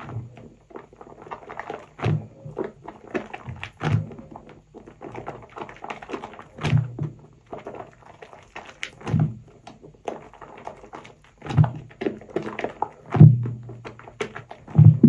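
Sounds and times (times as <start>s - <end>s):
lather crackling and popping: 0.0s - 6.7s.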